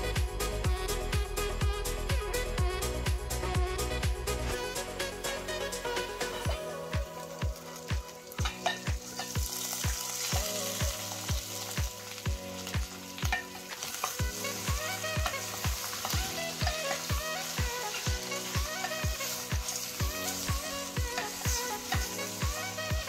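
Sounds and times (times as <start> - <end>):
background music with low beat: 0.0 - 23.0
meat and onions sizzling in a pan: 6.5 - 23.0.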